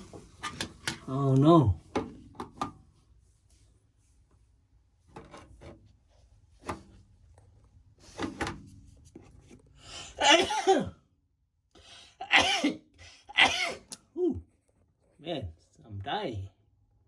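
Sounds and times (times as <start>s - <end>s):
man coughing harshly: 10.2s - 11.0s, 12.2s - 13.9s.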